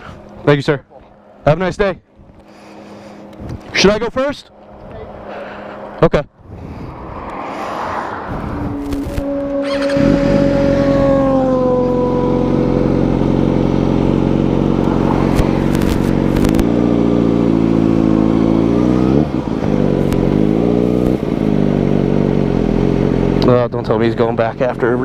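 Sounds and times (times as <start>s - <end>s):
gear upshifts: 6.5s - 12.6s, 14.6s - 17.1s, 17.8s - 21.6s
engine tone sliding downward: 6.6s - 23.5s
motorcycle engine revving: 6.8s - 25.0s.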